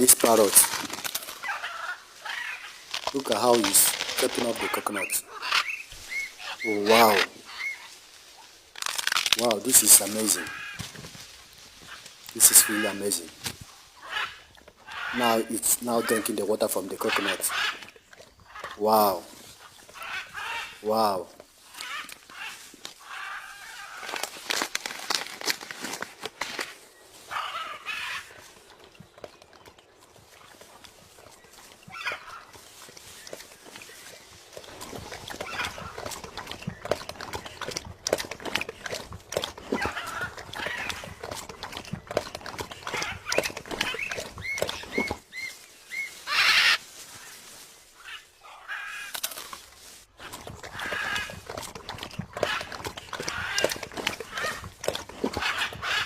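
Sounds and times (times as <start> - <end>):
parrot chirps and screeches: 43.0 - 46.8.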